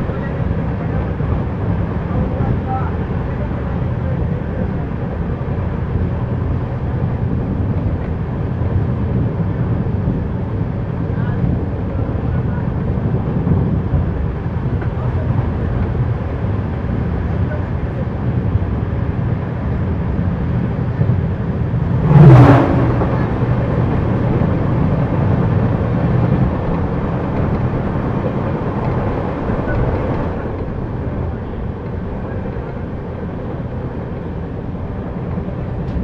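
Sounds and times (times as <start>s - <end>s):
train running rumble: 0.0s - 36.0s
whoosh falling in pitch: 22.0s - 23.8s.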